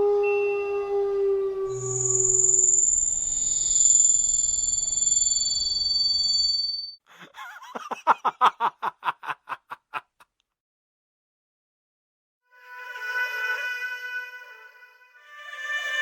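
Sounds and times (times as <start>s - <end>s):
firework whistles: 1.7s - 7.0s.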